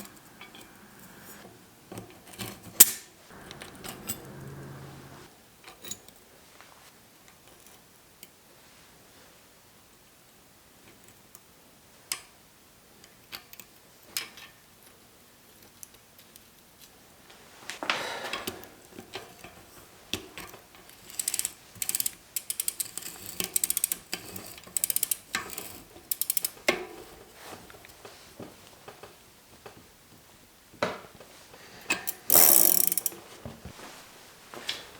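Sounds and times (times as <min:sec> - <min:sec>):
ratchet clicking: 0:26.1 - 0:26.5, 0:32.1 - 0:33.1.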